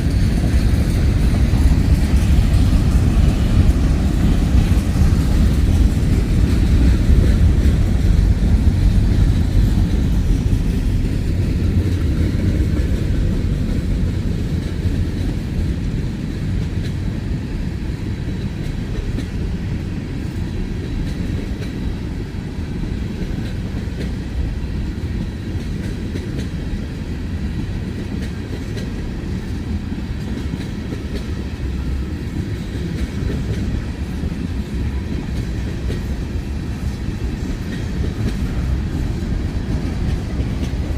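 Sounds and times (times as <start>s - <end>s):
wheels clicking over rail joints: 0.0s - 17.1s, 27.5s - 40.9s
train wheels rumbling on rail: 0.0s - 40.9s.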